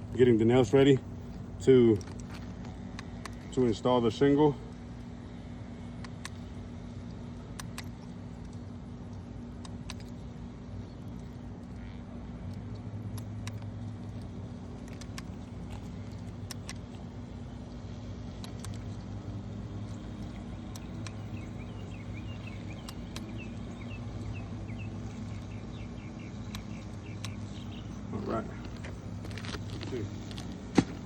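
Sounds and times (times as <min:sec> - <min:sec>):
low mechanical hum: 0:00.0 - 0:31.0
light clicks: 0:06.0 - 0:10.3, 0:19.8 - 0:25.8, 0:26.4 - 0:27.9.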